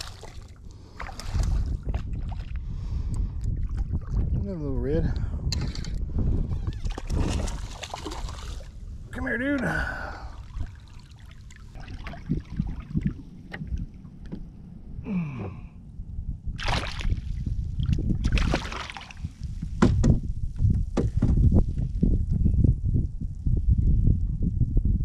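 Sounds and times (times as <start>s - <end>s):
water splashing: 0.0s - 2.5s, 6.8s - 8.8s, 9.6s - 14.0s, 16.6s - 19.4s
wind buffeting microphone: 0.0s - 25.0s
sharp knocks: 19.8s - 20.2s, 21.0s - 21.5s.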